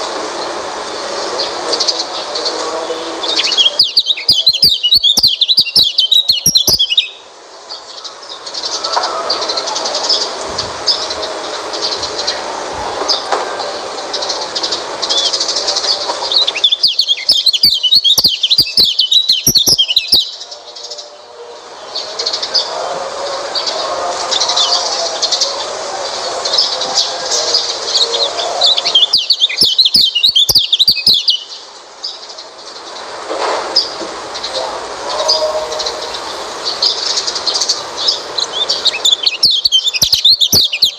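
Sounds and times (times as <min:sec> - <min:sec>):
birds twittering chorus: 0:00.0 - 0:40.9
fast bird warbling: 0:03.2 - 0:07.3, 0:14.6 - 0:20.4, 0:27.6 - 0:31.6, 0:35.1 - 0:40.9.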